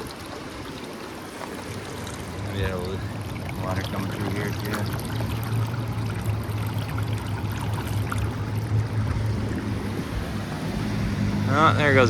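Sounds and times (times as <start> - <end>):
jet boat engine hum: 0.0 - 12.0
river water rushing over rocks: 0.0 - 12.0.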